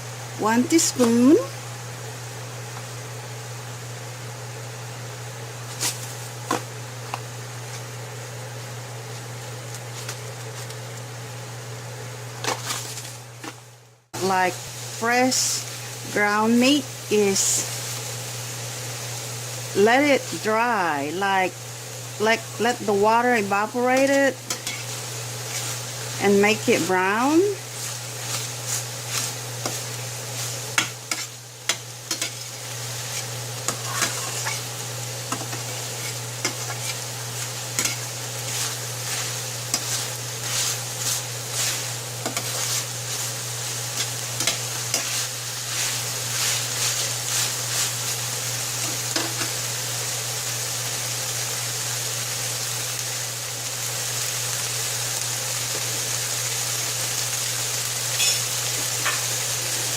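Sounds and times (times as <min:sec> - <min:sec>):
meat sizzling in a frying pan: 0:00.0 - 0:59.9
utensil scraping a pan: 0:24.0 - 0:25.8, 0:27.7 - 0:34.7, 0:35.3 - 0:48.2.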